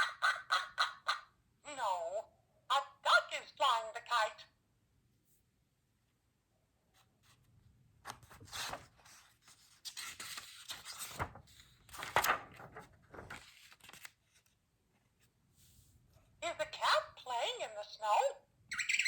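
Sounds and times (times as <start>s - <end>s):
book pages rustling: 6.9s - 16.0s.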